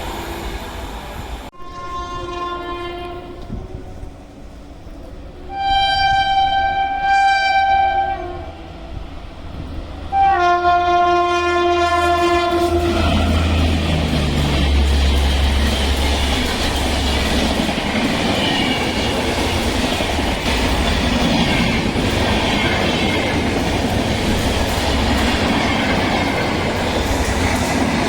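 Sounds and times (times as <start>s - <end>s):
rumble of oncoming train: 0.0s - 28.0s
train horn blasts: 1.6s - 3.9s, 5.4s - 8.6s, 10.1s - 13.7s.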